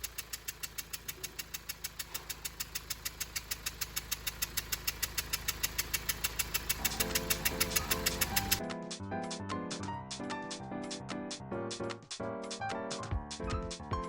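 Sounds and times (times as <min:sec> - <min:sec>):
diesel engine idling with chuffing tick: 0:00.0 - 0:08.6.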